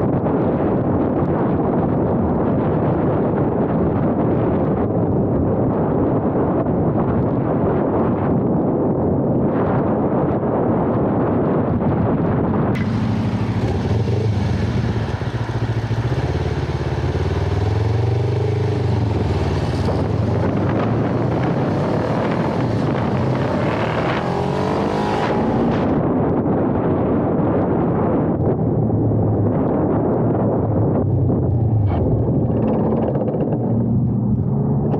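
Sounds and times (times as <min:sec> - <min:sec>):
wind rushing over microphone: 0:00.0 - 0:34.9
motorcycle engine revving: 0:12.8 - 0:26.1.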